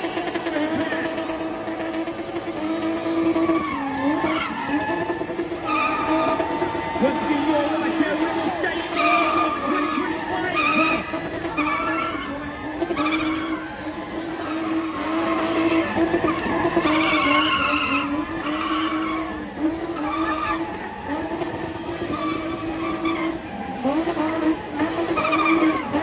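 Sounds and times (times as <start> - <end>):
car engine revving high: 0.0 - 26.0
tyres skidding and squealing: 0.0 - 26.0.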